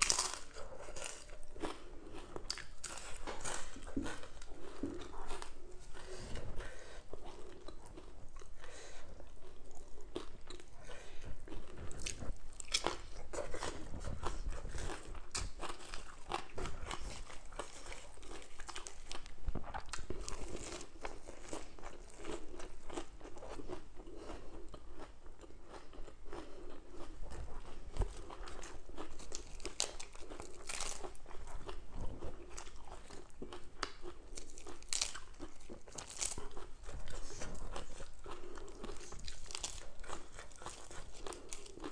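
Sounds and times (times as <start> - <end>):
crunching raw lettuce: 0.0 - 8.7, 26.9 - 41.9.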